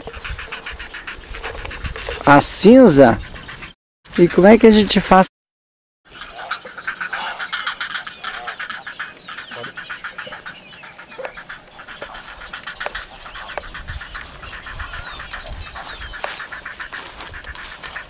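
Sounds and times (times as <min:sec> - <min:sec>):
egret colony chattering calls: 0:06.1 - 0:18.0
high sliding bird calls: 0:06.1 - 0:18.0.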